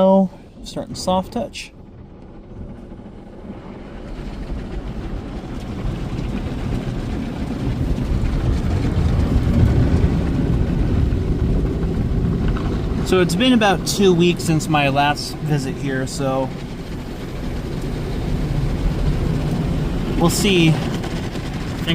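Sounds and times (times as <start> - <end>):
car wash brushes and water: 0.0 - 21.9.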